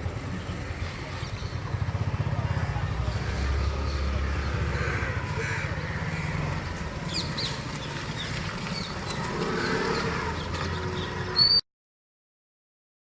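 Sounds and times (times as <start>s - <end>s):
scooter engine idling: 0.0s - 11.5s
bird chirps: 7.0s - 11.6s.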